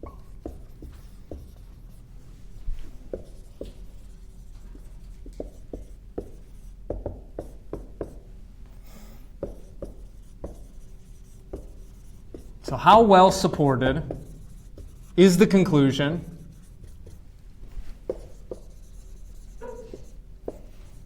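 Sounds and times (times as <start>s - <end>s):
pen strokes and taps: 2.7s - 3.8s, 4.5s - 8.2s, 11.5s - 12.6s, 16.6s - 21.0s.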